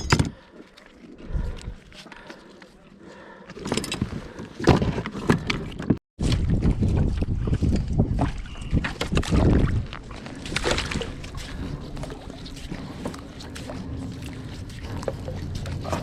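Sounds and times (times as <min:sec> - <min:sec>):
water lapping on kayak hull: 0:00.3 - 0:16.0
small knocks and splashes: 0:04.6 - 0:16.0
wind on microphone: 0:06.2 - 0:16.0.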